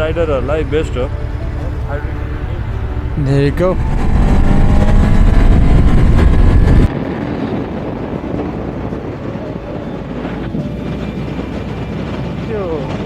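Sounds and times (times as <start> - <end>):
vehicle engine accelerating: 0.0 - 9.4
road noise: 0.0 - 13.0
wind noise: 0.0 - 13.0.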